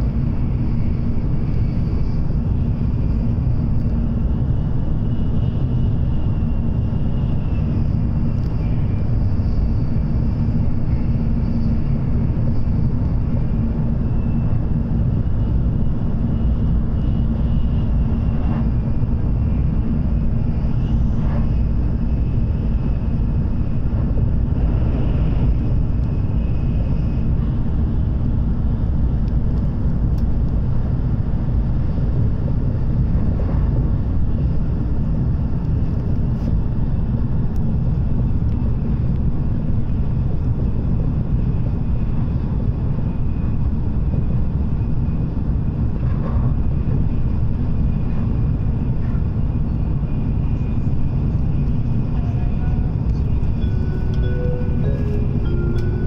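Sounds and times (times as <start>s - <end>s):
low rumble of train wheels: 0.0s - 56.0s
faint high whine: 49.5s - 56.0s.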